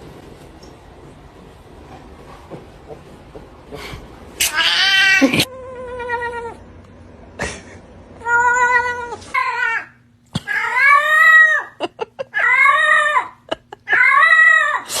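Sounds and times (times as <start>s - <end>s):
cat meowing: 8.2s - 9.9s.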